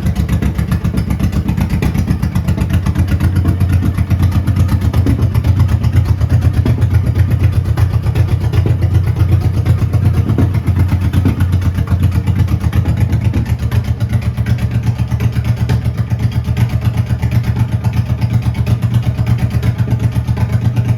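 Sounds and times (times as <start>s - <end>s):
motorcycle engine idling: 0.0s - 20.9s.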